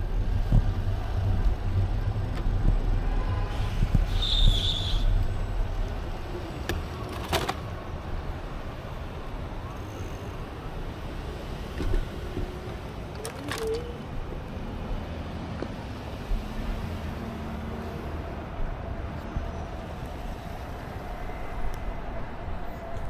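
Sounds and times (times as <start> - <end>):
wind on microphone: 0.0 - 5.2
bicycle road noise: 0.0 - 23.0.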